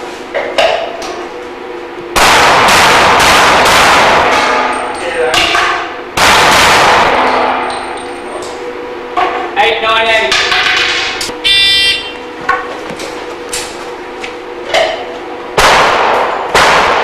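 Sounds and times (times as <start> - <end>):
rapid pistol shots: 2.2 - 4.7, 6.2 - 7.4, 15.6 - 17.0
steel targets ringing: 4.2 - 5.9, 7.1 - 8.4.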